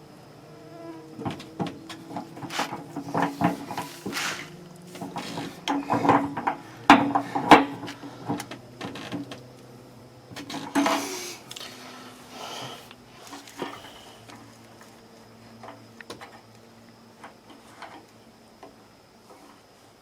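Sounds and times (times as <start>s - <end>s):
scraping rubs: 1.9s - 6.2s.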